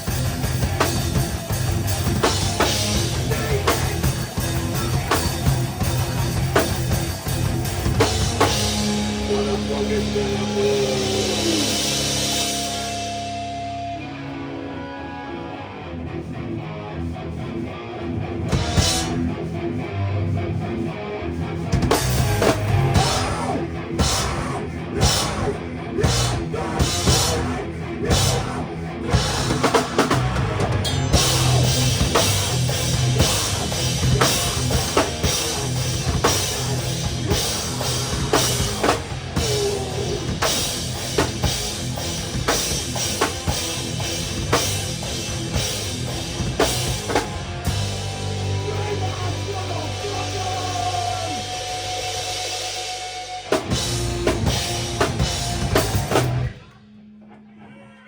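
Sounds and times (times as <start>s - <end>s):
live rock band: 0.0s - 56.8s
held low guitar and bass chord: 0.2s - 17.1s, 22.0s - 23.5s, 25.2s - 56.6s
drum kit hits: 29.2s - 39.6s, 53.5s - 56.5s.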